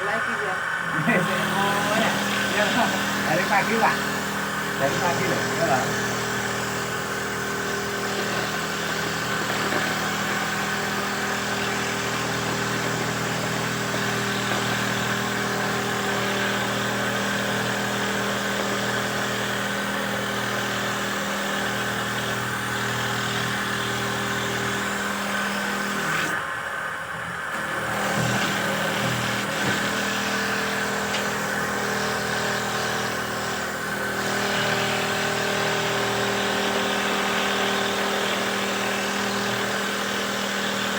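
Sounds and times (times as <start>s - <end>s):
machine motor humming and hissing: 0.0s - 40.9s.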